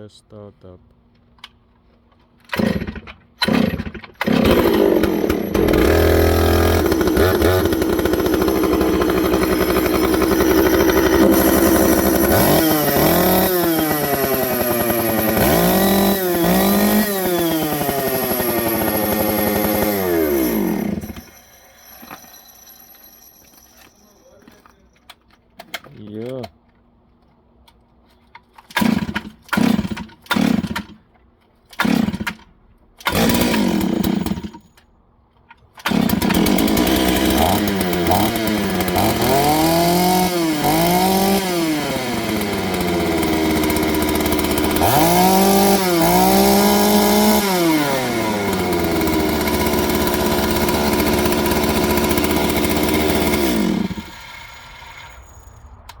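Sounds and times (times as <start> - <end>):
chainsaw starting and revving: 2.5 - 22.3, 28.7 - 31.0, 31.7 - 34.6, 35.8 - 55.5.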